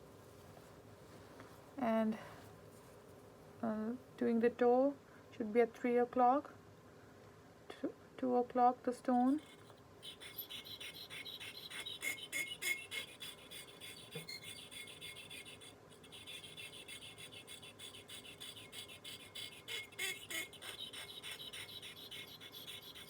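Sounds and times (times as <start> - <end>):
blade scraping on sharpening stone: 9.4 - 23.0.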